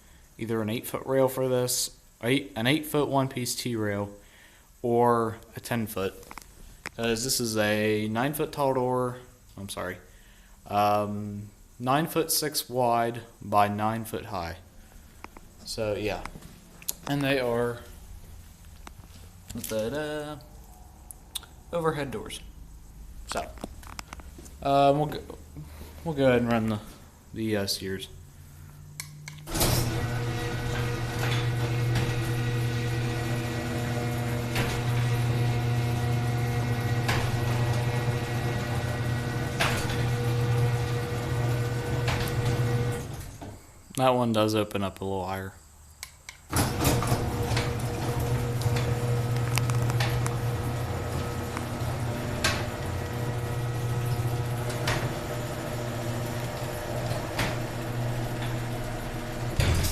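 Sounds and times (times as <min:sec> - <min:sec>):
sharp click: 0:29.0 - 0:29.5, 0:46.0 - 0:46.5
garage door opener motor hum: 0:29.4 - 0:43.6, 0:46.5 - 0:59.9.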